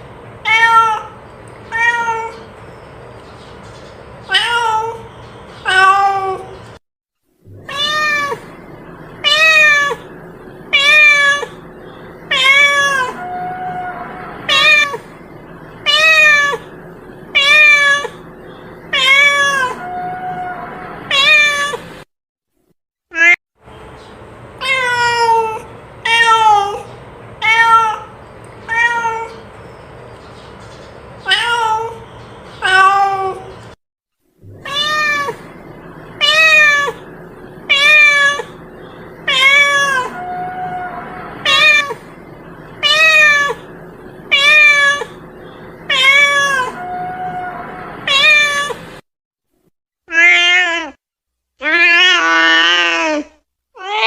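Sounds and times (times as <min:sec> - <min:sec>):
cat meowing: 0:00.4 - 0:02.5, 0:04.3 - 0:05.0, 0:05.6 - 0:06.6, 0:07.6 - 0:08.5, 0:09.2 - 0:10.1, 0:10.7 - 0:11.6, 0:12.3 - 0:15.0, 0:15.8 - 0:16.7, 0:17.4 - 0:18.2, 0:18.9 - 0:21.8, 0:24.6 - 0:29.4, 0:31.3 - 0:32.0, 0:32.6 - 0:33.5, 0:34.5 - 0:35.5, 0:36.2 - 0:37.1, 0:37.7 - 0:38.6, 0:39.2 - 0:42.1, 0:42.8 - 0:43.7, 0:44.3 - 0:45.2, 0:45.9 - 0:48.8.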